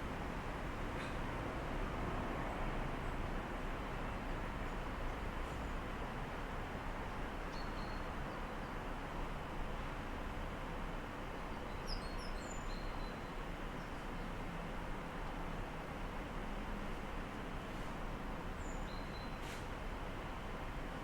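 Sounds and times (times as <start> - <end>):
distant city traffic hum: 0.0 - 7.4.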